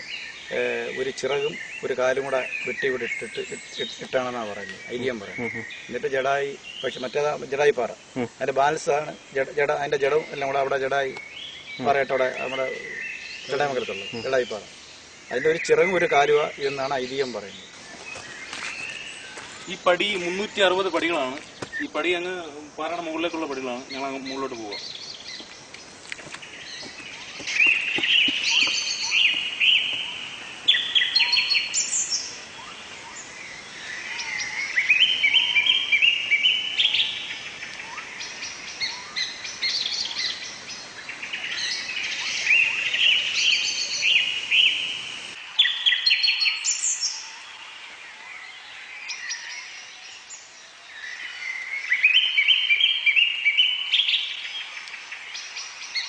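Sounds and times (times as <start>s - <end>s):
bird song phrase: 0.0s - 56.0s
high bird chirps: 9.1s - 47.4s.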